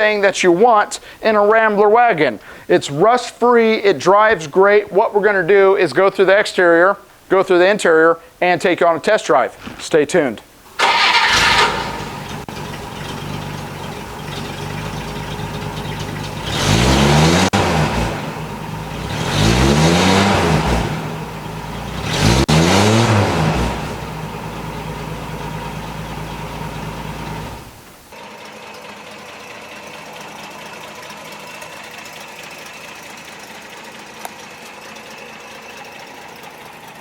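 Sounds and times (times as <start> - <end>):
car engine idling and revving: 10.8 - 37.0.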